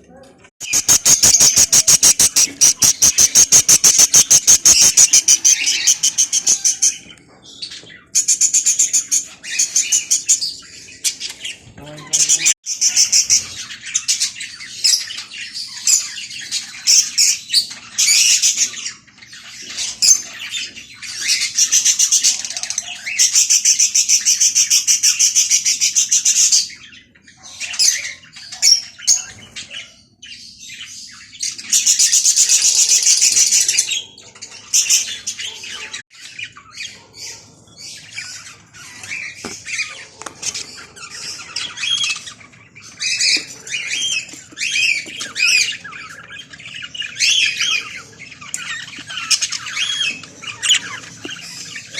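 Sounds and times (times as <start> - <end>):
budgerigars chirping and squawking: 0.1 - 51.9
harsh rasping bird calls: 0.6 - 7.0.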